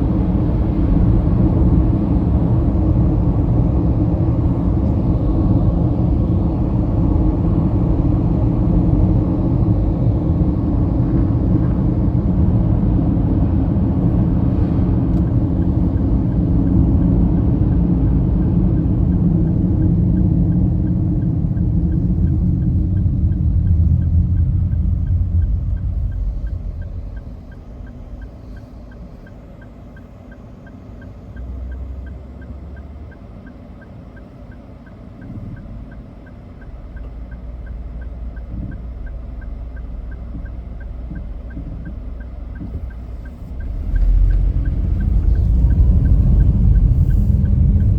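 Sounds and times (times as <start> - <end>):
car road and engine rumble: 0.0 - 47.9
faint even ticking: 18.8 - 47.9.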